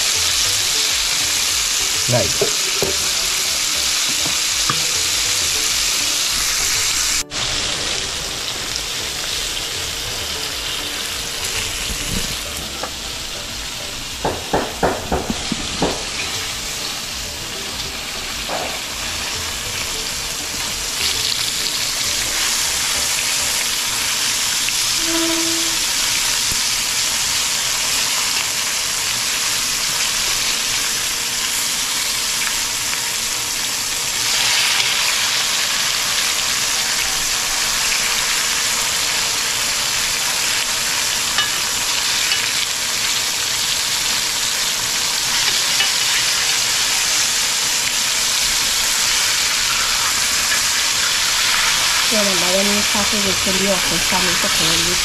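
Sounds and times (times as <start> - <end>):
fish sizzling in hot oil: 0.0 - 55.0.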